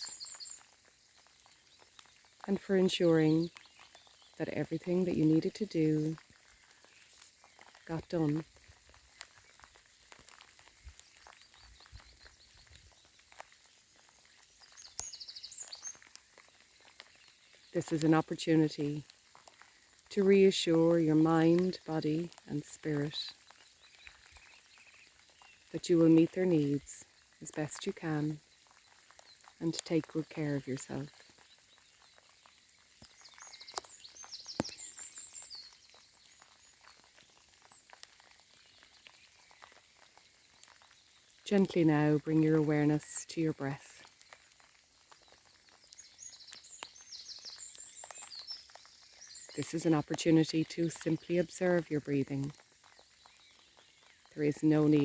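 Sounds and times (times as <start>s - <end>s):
songbird trilling: 0.0s - 0.7s, 33.0s - 37.0s
faint outdoor background noise: 0.0s - 55.0s
soft rain with drop ticks: 0.0s - 55.0s.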